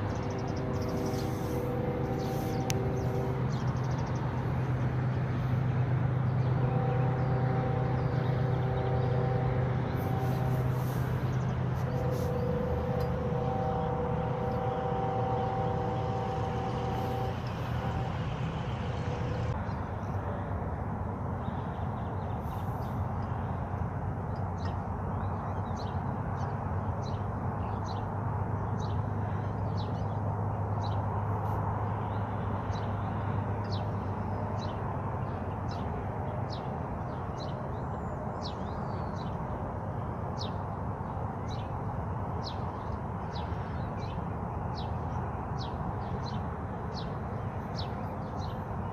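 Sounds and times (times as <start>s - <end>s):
steady tones: 0.0s - 19.6s
low hum: 0.0s - 25.5s
steady rushing noise: 0.0s - 37.3s.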